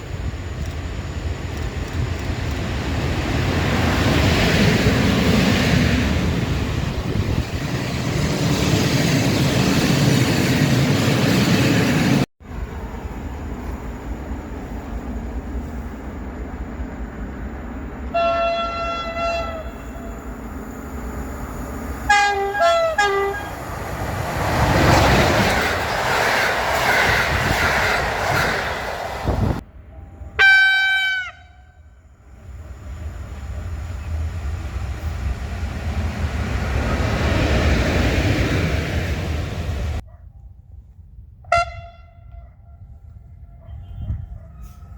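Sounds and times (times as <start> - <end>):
rumble of passing trains: 0.0 - 44.9
train horn blasts: 18.1 - 20.2, 22.1 - 23.6, 29.8 - 32.0, 41.5 - 44.8.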